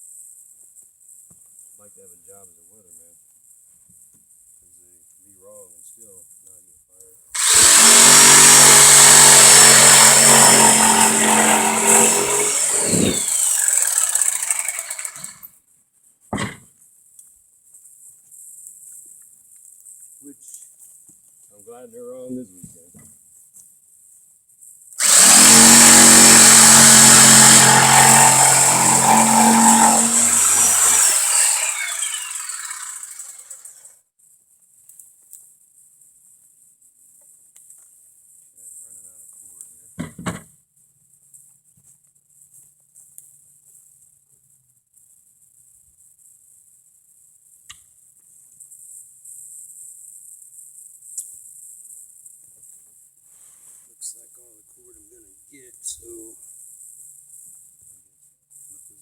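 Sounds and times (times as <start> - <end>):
electric saw cutting wood: 7.4 - 15.5, 25.0 - 33.8.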